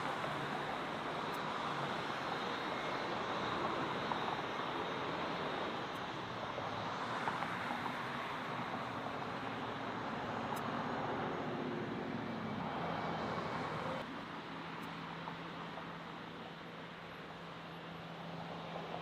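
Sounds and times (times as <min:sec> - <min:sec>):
jet engines roaring: 0:00.0 - 0:14.8.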